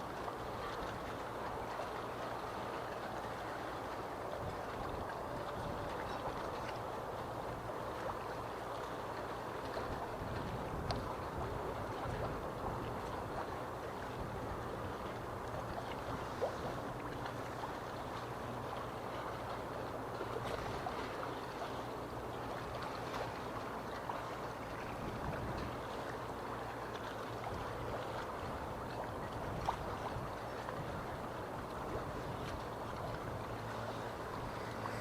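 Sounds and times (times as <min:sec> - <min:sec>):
water lapping and sloshing: 0:00.0 - 0:35.0
low hum: 0:31.6 - 0:35.0.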